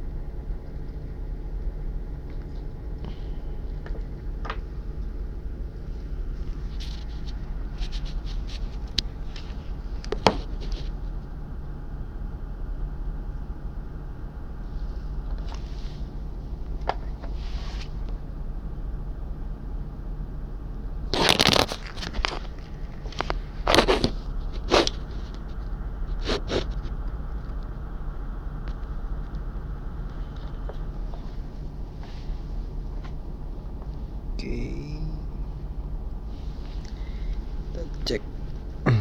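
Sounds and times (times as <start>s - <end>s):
steady low hum: 0.0s - 39.0s
packaging rustling and scraping: 6.5s - 10.9s, 21.1s - 27.0s.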